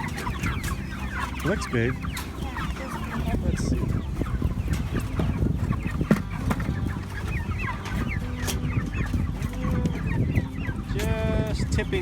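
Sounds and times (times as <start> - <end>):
chickens clucking and peeping: 0.0 - 12.0.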